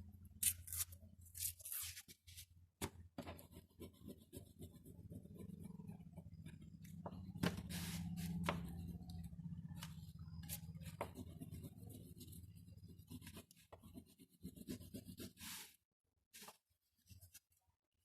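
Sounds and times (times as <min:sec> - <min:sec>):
low steady hum: 0:03.0 - 0:15.2
pencil scratching on paper: 0:03.3 - 0:06.9, 0:07.6 - 0:09.2, 0:10.0 - 0:15.8.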